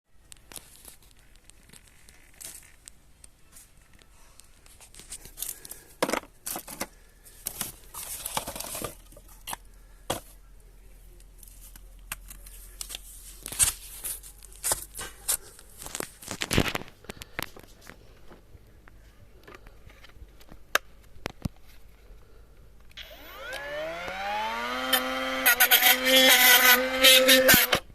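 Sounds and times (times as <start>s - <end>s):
objects rustling scraping and clicking: 0.4s - 10.4s, 11.4s - 18.4s.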